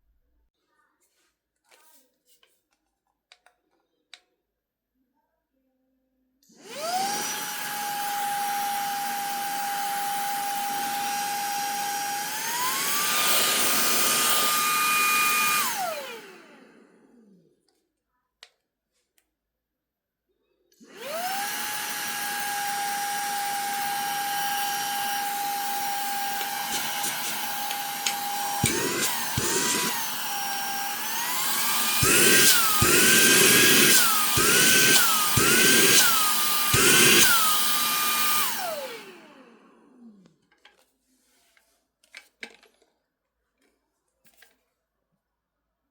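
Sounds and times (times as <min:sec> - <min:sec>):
handheld vacuum motor whining: 0:06.5 - 0:17.5, 0:20.8 - 0:40.4.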